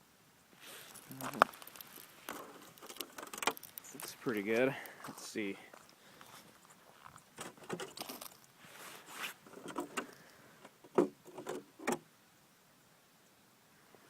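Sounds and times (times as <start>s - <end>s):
plastic jug crinkling: 0.7s - 10.4s.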